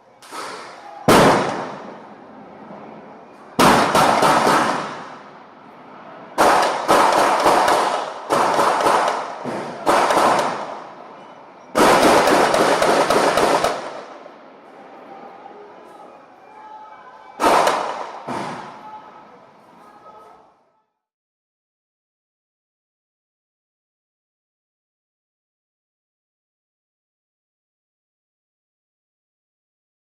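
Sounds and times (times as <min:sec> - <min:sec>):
loud explosive bangs: 0:00.3 - 0:02.1, 0:03.6 - 0:05.3, 0:06.4 - 0:11.0, 0:11.8 - 0:14.2, 0:17.4 - 0:18.8.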